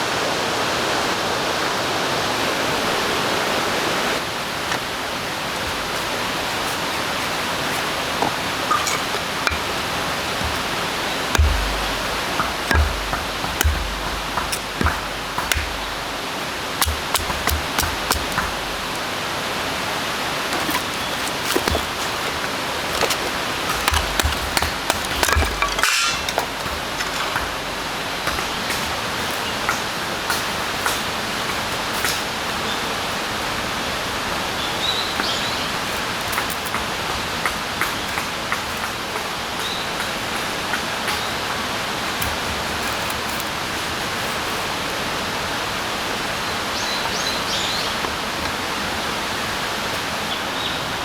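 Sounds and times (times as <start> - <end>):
rain hissing: 0.0 - 39.1
drops ticking on surface: 8.2 - 16.2, 16.8 - 19.0.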